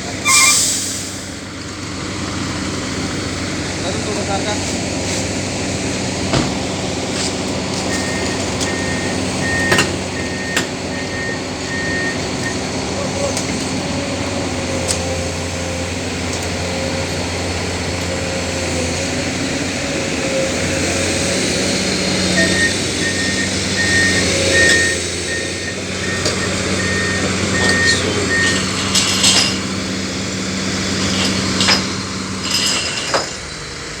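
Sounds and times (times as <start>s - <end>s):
diesel engine running: 0.0s - 34.0s
backup alarm beeping: 22.4s - 28.8s
sharp metal clanks: 27.6s - 29.8s.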